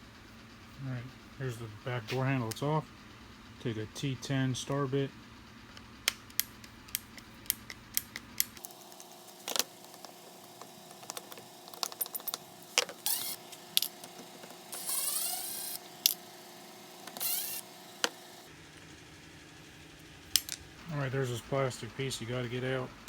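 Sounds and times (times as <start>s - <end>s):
hand tools clicking and ratcheting: 6.2s - 16.2s, 17.0s - 18.2s.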